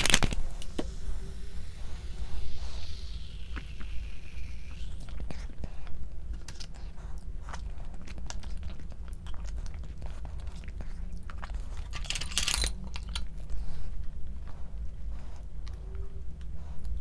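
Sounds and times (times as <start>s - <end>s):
person chewing crunchy food: 3.0s - 12.0s.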